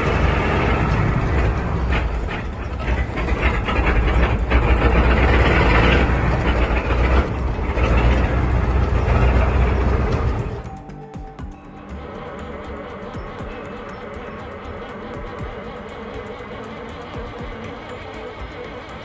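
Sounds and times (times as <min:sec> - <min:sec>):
large engine rumbling: 0:00.0 - 0:10.9.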